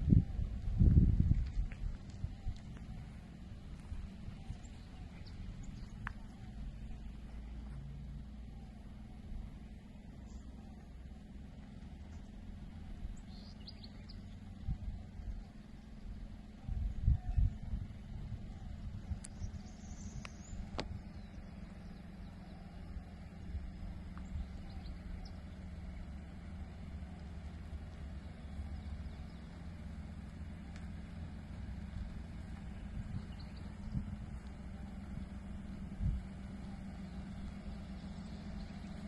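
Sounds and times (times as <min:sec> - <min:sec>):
vehicle engine rumbling: 0:00.0 - 0:39.0
faint clicks: 0:05.2 - 0:06.4, 0:19.1 - 0:21.5, 0:30.2 - 0:31.2.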